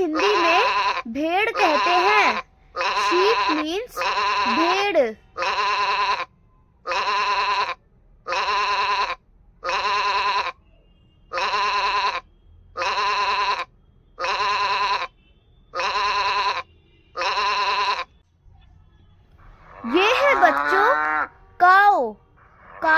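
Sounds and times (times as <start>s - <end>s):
sheep bleating: 0.1s - 6.3s, 6.9s - 10.6s, 11.3s - 12.2s, 12.8s - 15.1s, 15.8s - 18.1s, 19.6s - 21.3s.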